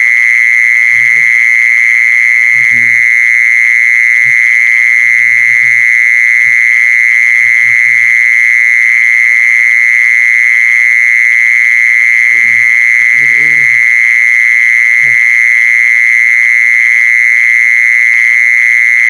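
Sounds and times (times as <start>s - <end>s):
insect buzzing trill: 0.0s - 9.5s, 11.7s - 15.6s.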